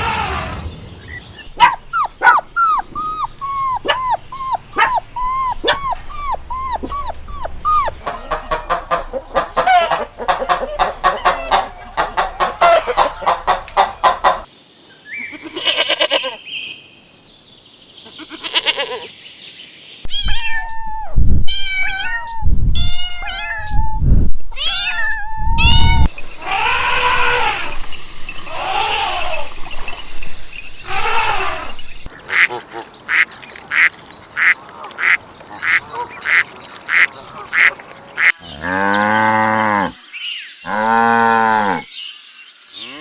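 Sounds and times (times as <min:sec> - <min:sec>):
dog whimpering: 0:01.6 - 0:08.0
chickens clucking: 0:01.6 - 0:14.5
farm animal calls: 0:01.6 - 0:14.5, 0:30.8 - 0:40.0.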